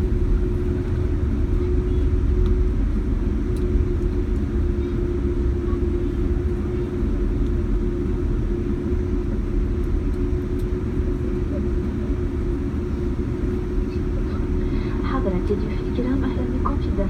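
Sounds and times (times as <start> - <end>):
aircraft cabin rumble: 0.0 - 17.0
steady hum: 0.0 - 17.0.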